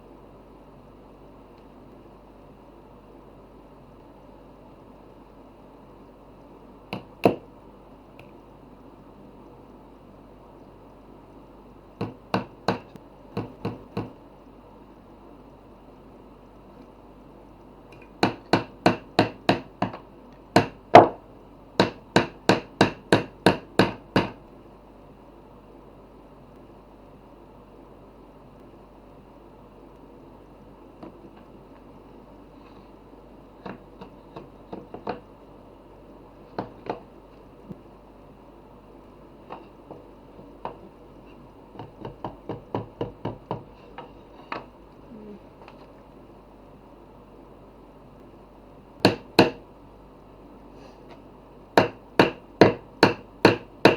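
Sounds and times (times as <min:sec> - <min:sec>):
sharp knocks on wood: 0:12.0 - 0:14.2, 0:18.2 - 0:20.0, 0:20.6 - 0:21.2, 0:49.0 - 0:49.6.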